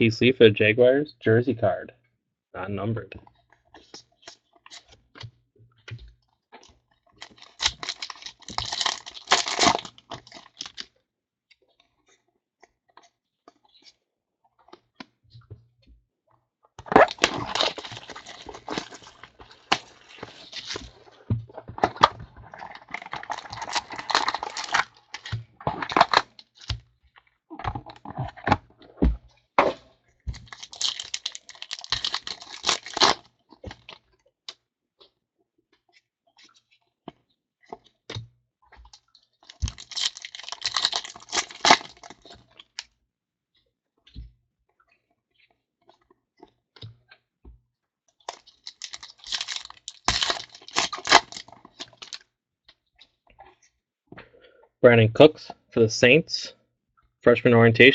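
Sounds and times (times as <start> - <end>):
wrappers crinkling and tearing: 7.2 - 10.8, 16.9 - 21.2, 21.8 - 26.8, 30.3 - 34.0, 39.4 - 42.8, 48.3 - 52.2.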